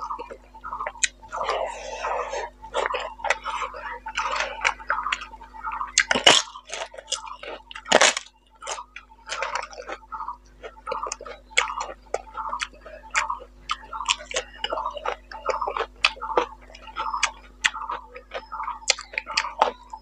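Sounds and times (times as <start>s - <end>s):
wet chewing and lip smacks: 0.1s - 20.0s
crunching fried snack: 6.0s - 19.9s.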